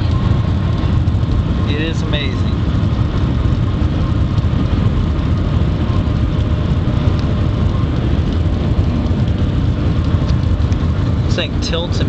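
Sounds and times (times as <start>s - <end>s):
loud low train rumble: 0.0s - 12.0s
rushing air noise: 0.0s - 12.0s.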